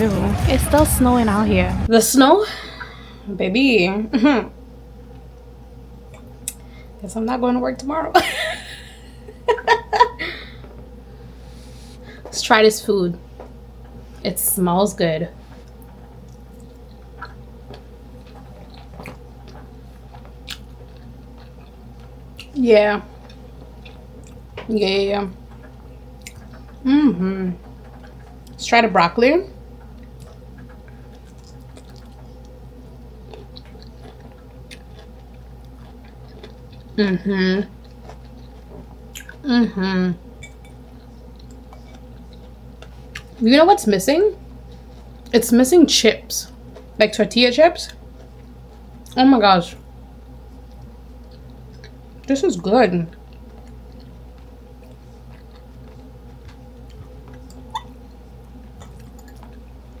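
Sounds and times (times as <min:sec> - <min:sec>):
steady low hum: 0:00.0 - 1:00.0
person chewing crunchy food: 0:15.5 - 0:24.6, 0:29.6 - 0:39.5, 0:40.2 - 0:43.4, 0:44.4 - 0:45.3, 0:47.9 - 0:49.2, 0:49.8 - 0:52.3, 0:53.1 - 1:00.0.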